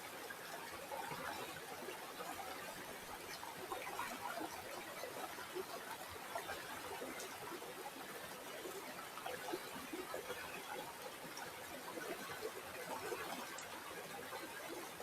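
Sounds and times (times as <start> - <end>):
river water babbling: 0.1 - 15.0.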